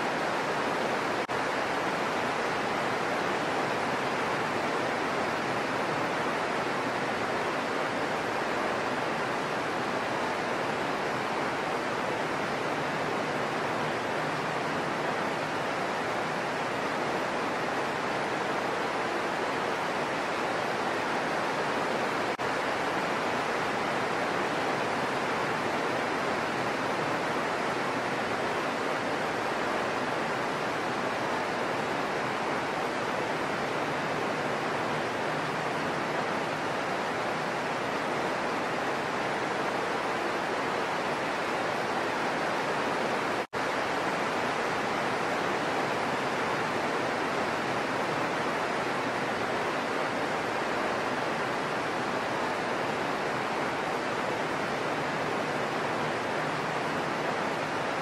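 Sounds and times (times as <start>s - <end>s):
heavy rain on foliage: 0.0s - 58.0s.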